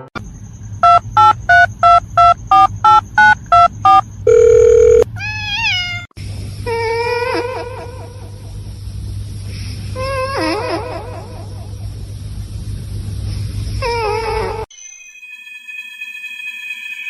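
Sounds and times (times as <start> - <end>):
telephone keypad tones: 0.8 - 5.0
steady dial tone: 0.8 - 5.1.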